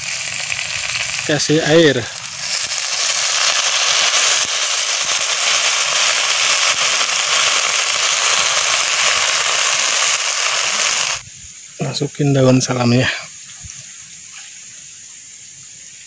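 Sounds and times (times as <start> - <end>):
loud sizzling and crackling: 0.0 - 11.2.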